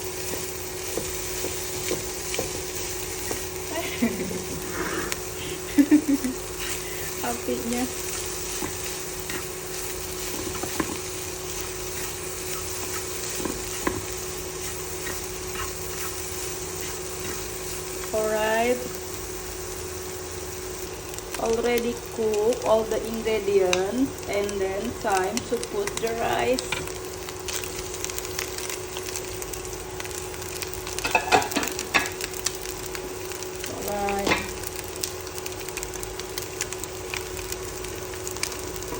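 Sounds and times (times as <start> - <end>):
food sizzling in a hot pan: 0.0 - 38.9
utensil scraping a pan: 11.7 - 17.5.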